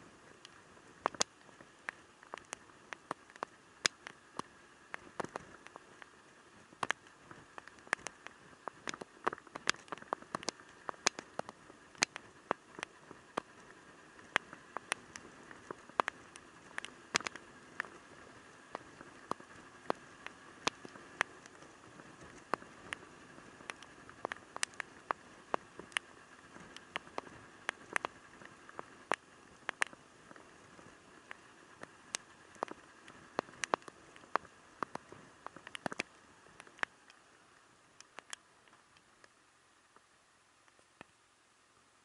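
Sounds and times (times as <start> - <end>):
faint steady hum: 0.0 - 42.0
raindrops tapping: 1.0 - 6.2, 6.8 - 30.5, 31.2 - 37.3.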